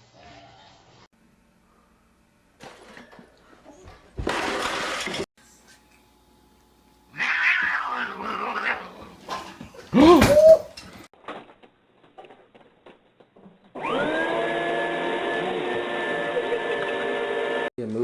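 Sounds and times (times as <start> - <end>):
electric motor appliance humming: 13.8 - 17.7.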